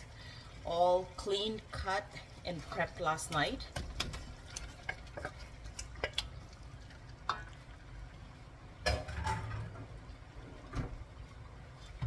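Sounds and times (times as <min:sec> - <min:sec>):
spoon scraping cooking pot: 0:03.8 - 0:06.4.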